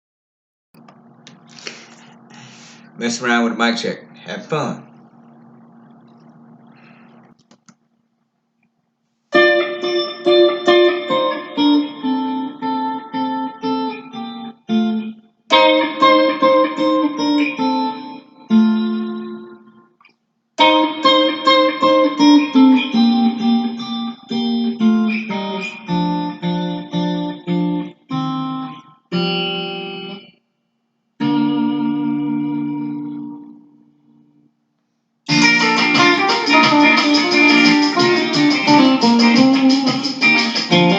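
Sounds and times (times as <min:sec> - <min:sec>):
guitar picked melody: 0:09.3 - 0:19.9, 0:20.6 - 0:30.4, 0:31.2 - 0:34.5, 0:35.3 - 0:40.9.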